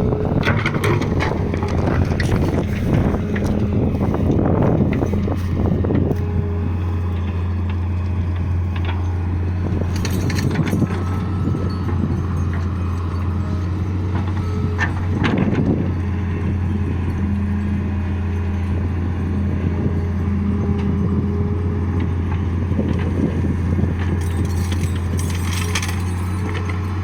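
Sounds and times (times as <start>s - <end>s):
diesel engine humming: 0.0s - 27.0s
knocks and rattles: 23.9s - 27.0s.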